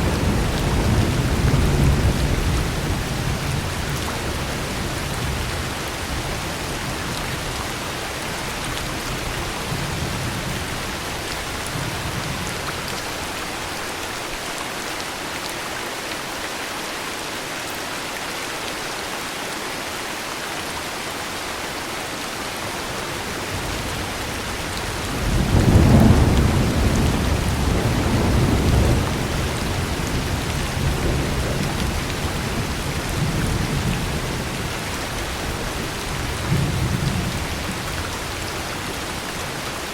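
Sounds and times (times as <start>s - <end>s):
thunder rumbling: 0.0s - 7.6s, 22.8s - 39.2s
heavy rain hissing: 0.0s - 39.9s.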